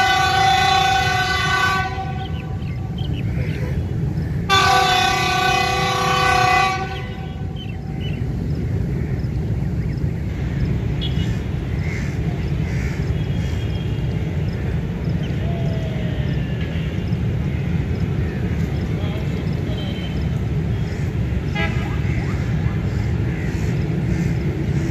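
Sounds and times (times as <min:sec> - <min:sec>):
diesel locomotive horn blast: 0:00.0 - 0:03.1, 0:04.4 - 0:08.3, 0:19.6 - 0:22.7
low rumble of train: 0:00.0 - 0:24.9.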